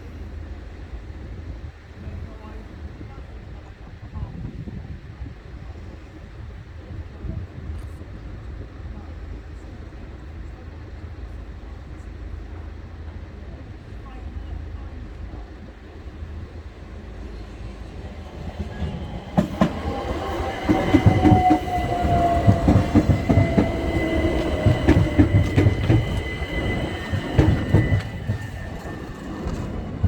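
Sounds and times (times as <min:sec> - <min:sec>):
train whine sliding down: 0:16.3 - 0:30.0
train wheels clacking over rail joints: 0:18.6 - 0:30.0.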